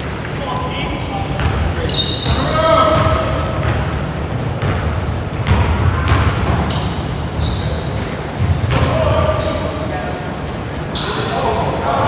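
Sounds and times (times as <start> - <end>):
low rumble of large hall: 0.0 - 12.0
basketball bouncing on gym floor: 1.3 - 9.5.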